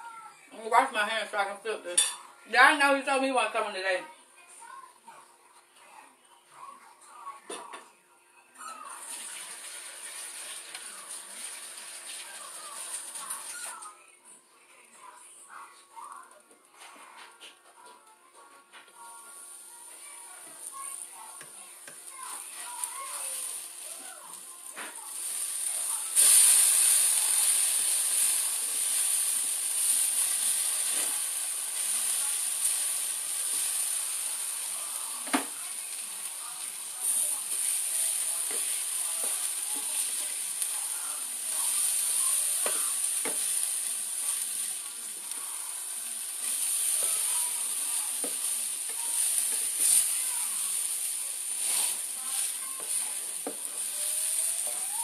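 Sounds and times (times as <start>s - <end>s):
potatoes sizzling in a skillet: 8.8s - 13.9s, 19.0s - 55.0s
spatula scraping and tapping a pan: 42.6s - 43.6s, 46.4s - 50.2s.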